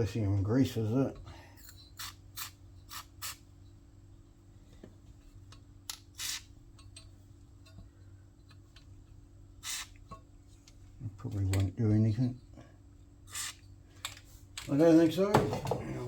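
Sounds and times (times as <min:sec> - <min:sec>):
steady low hum: 0:00.0 - 0:16.0
aerosol can hissing squirts: 0:02.0 - 0:03.4, 0:06.2 - 0:06.5, 0:09.6 - 0:10.0, 0:13.3 - 0:13.6.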